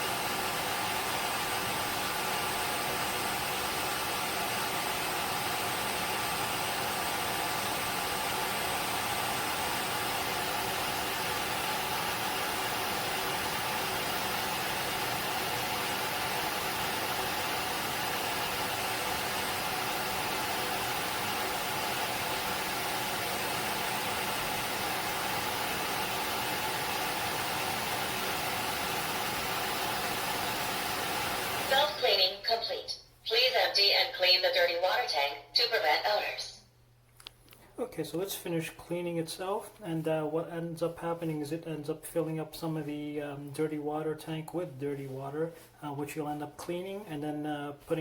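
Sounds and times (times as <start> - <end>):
floor cleaner motor blowing air: 0.0 - 32.3.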